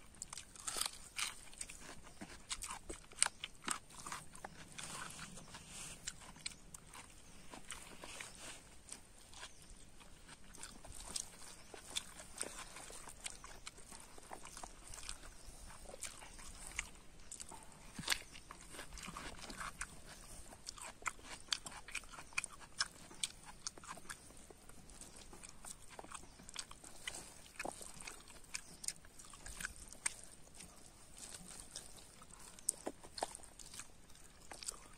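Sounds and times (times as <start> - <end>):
chewing with wet mouth clicks: 0.0 - 34.9.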